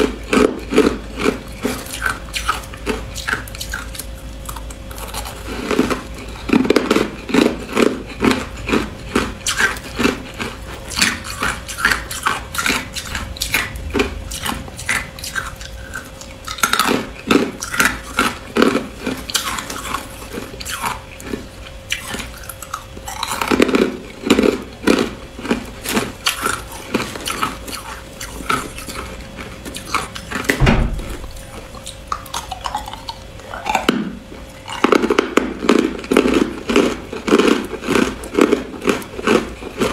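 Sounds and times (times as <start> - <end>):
person chewing hard ice: 0.0 - 39.9.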